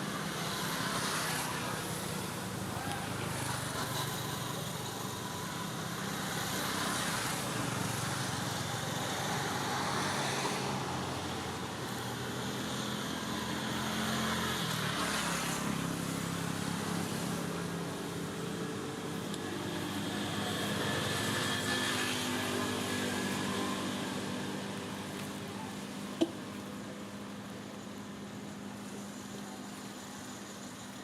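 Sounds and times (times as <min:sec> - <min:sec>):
road noise: 0:00.0 - 0:31.0
vehicle engine hum: 0:00.0 - 0:31.0.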